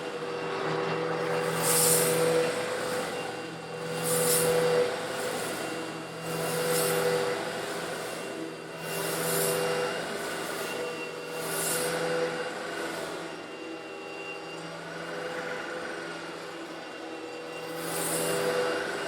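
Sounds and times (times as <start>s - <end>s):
vacuum cleaner motor hum: 0.0s - 19.0s.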